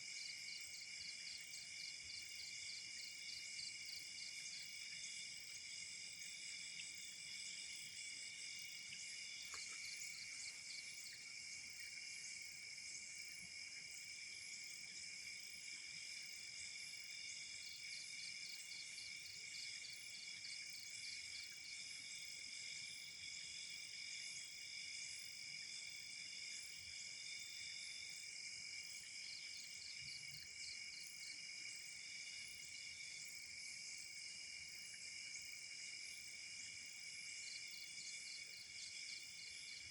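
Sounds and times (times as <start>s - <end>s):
crickets trilling: 0.1s - 21.8s.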